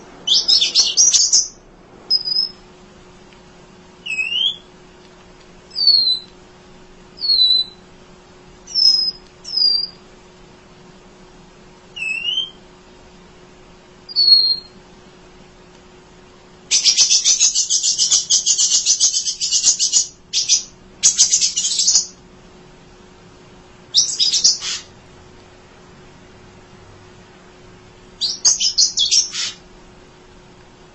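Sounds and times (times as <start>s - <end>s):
bird chattering trill: 0.0s - 2.6s, 4.0s - 4.7s, 8.7s - 10.0s, 16.7s - 22.2s, 24.0s - 24.9s, 28.2s - 29.6s
bird whistled notes: 0.2s - 2.6s, 4.0s - 4.7s, 5.7s - 6.3s, 7.2s - 7.8s, 8.7s - 10.0s, 12.0s - 12.6s, 14.1s - 14.8s, 16.7s - 22.1s, 24.0s - 24.9s, 28.2s - 29.6s.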